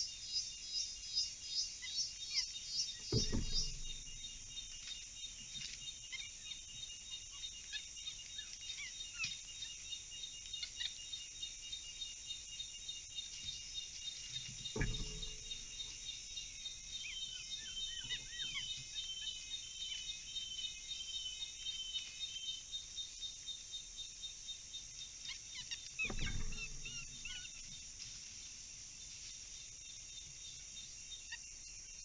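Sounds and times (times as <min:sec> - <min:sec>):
insect chirping pulse: 0:00.0 - 0:32.0
insects droning: 0:00.0 - 0:32.0
dull thumps: 0:03.1 - 0:04.5, 0:14.6 - 0:16.0, 0:26.0 - 0:27.5
birds chirping and whistling: 0:14.3 - 0:22.6.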